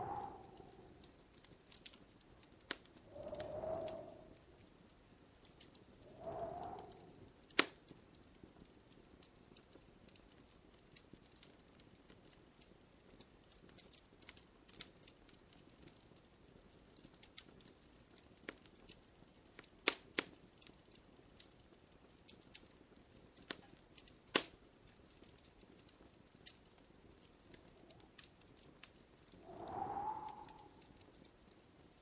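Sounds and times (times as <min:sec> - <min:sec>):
faint hiss: 0:00.0 - 0:01.5, 0:02.6 - 0:07.8, 0:27.0 - 0:32.0
wood fire crackling: 0:00.0 - 0:32.0.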